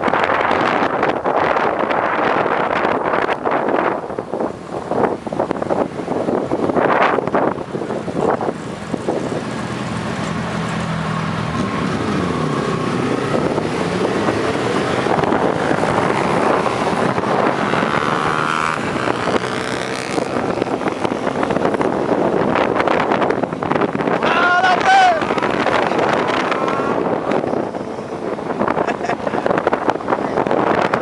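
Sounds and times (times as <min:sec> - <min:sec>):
motorcycle engines running: 0:00.0 - 0:31.0
motorcycle engine revving: 0:08.4 - 0:24.2, 0:25.1 - 0:31.0.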